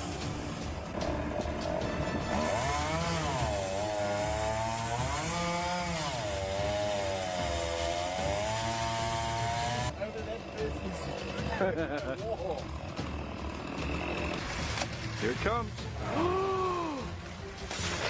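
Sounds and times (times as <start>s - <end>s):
chainsaw cutting wood: 2.2s - 9.9s, 13.0s - 14.9s.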